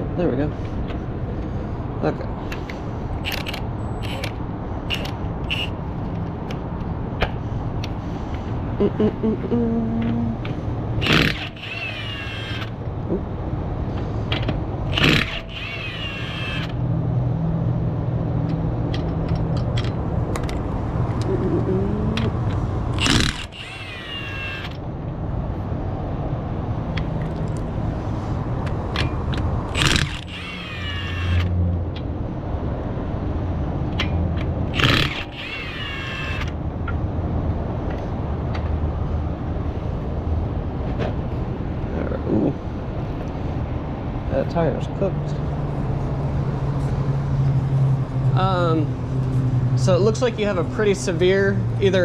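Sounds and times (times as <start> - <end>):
low engine hum: 0.0 - 11.8, 16.6 - 23.6
impact wrench hammering lug nuts: 11.0 - 12.8, 14.9 - 16.7, 23.0 - 24.8, 29.7 - 31.4, 34.0 - 36.5.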